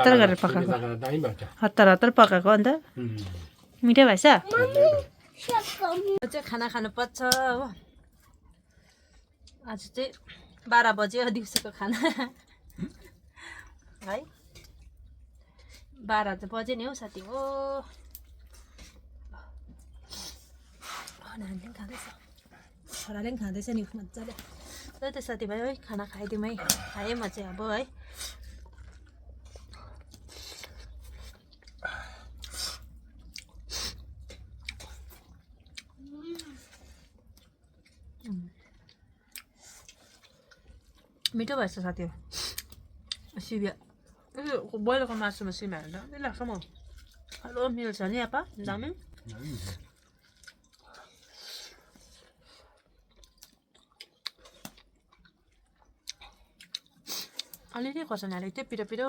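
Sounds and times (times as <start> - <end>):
person chewing food: 2.9 - 3.8, 7.9 - 10.6, 12.4 - 16.0, 17.9 - 21.2, 25.9 - 41.4, 42.2 - 44.4, 46.4 - 47.6, 48.6 - 57.7.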